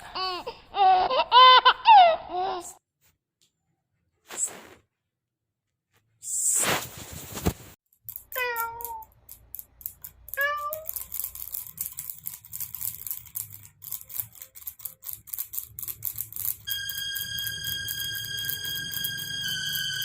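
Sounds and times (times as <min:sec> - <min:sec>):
kitten meowing: 0:10.4 - 0:10.9
high electronic tone: 0:16.7 - 0:20.0.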